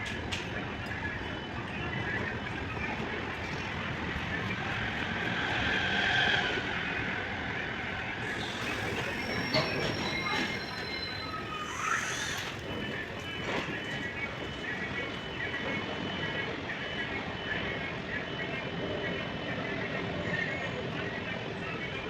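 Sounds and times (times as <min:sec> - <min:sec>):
train rumble and clatter: 0:00.0 - 0:22.0
wheels squealing on track: 0:08.1 - 0:14.3.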